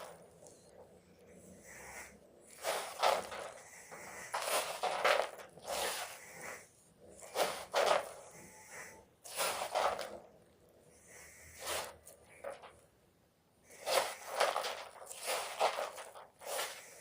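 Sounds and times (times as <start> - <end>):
chalk block crunching: 2.5 - 6.2, 9.3 - 10.2, 13.8 - 17.0.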